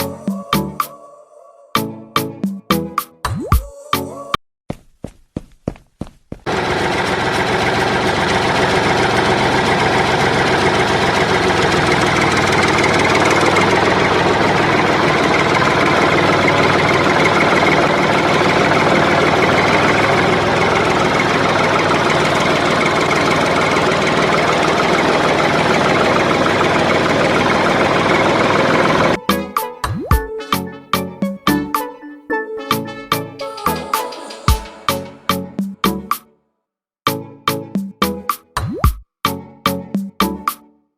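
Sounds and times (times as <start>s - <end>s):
engine idling: 6.5s - 29.5s.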